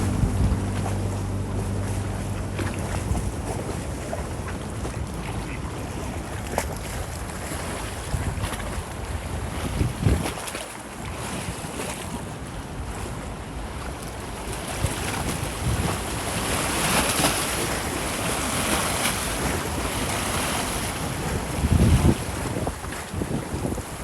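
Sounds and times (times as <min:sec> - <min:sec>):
strong wind rushing through trees: 0:00.0 - 0:03.7
wind buffeting microphone: 0:00.0 - 0:13.1, 0:13.8 - 0:24.0.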